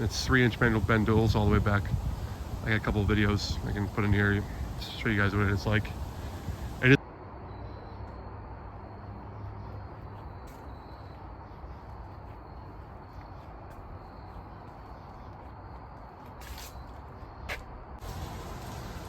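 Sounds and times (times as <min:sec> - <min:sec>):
pickup engine low rumble: 0:18.0 - 0:19.0.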